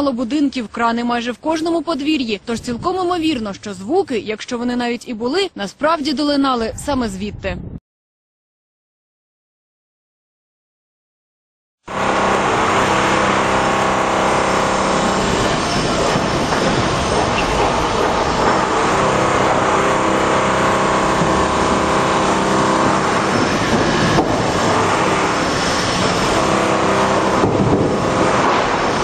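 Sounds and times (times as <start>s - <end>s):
loud metallic drone: 11.9s - 29.0s.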